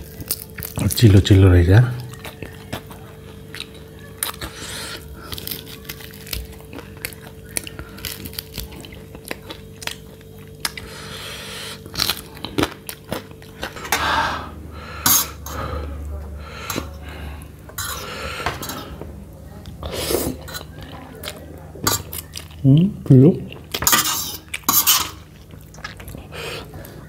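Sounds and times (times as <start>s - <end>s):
close chewing and biting: 0.0s - 1.2s, 1.9s - 13.9s, 19.6s - 22.6s, 23.5s - 27.0s.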